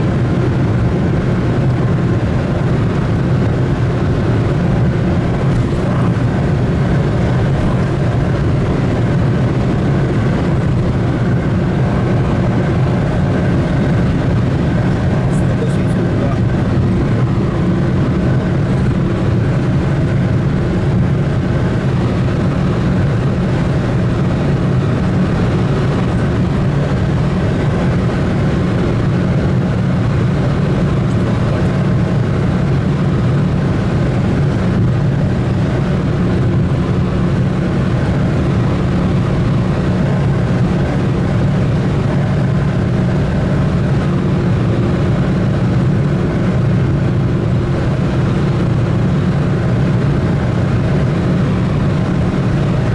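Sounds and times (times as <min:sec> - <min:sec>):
vehicle engine droning: 0:00.0 - 0:52.9.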